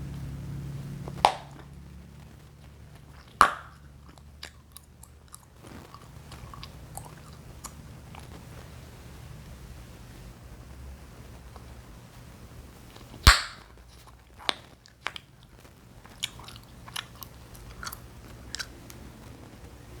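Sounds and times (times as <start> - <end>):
chewing gum popping: 0.0 - 8.8, 12.9 - 20.0
wet chewing clicks: 0.0 - 9.1, 12.8 - 20.0.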